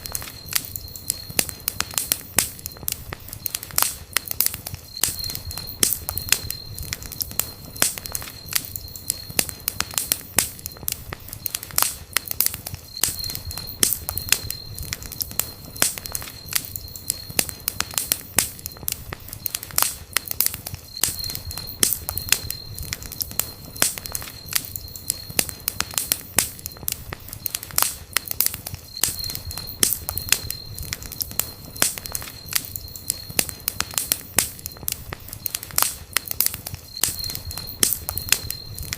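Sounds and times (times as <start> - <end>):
wood fire crackling: 0.0 - 38.9
thin high whistle: 4.8 - 11.7, 12.8 - 19.7, 28.8 - 35.7, 36.8 - 38.9.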